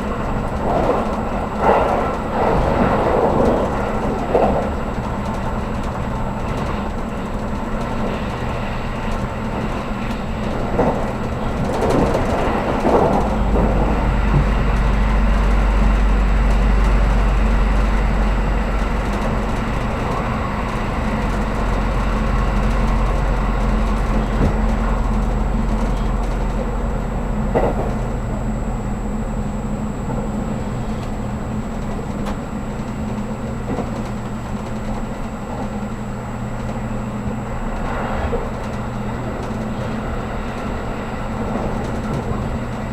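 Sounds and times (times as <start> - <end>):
train wheels rumbling: 0.0 - 42.9
deep hum: 12.5 - 39.5.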